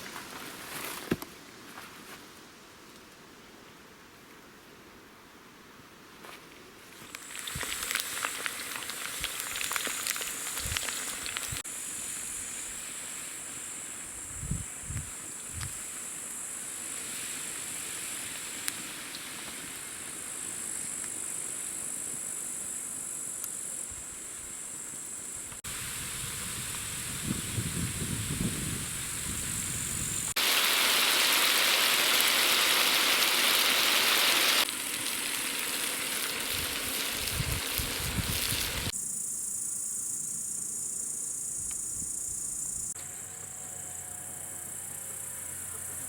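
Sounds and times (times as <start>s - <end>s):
wood fire crackling: 7.0s - 13.1s, 16.8s - 21.5s, 30.1s - 39.0s
steady high hiss: 7.0s - 43.3s.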